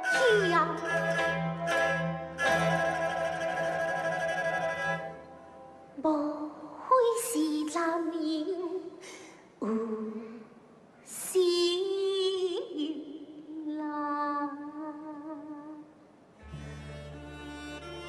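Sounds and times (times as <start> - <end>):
woman singing opera: 0.0 - 4.8, 11.1 - 15.9.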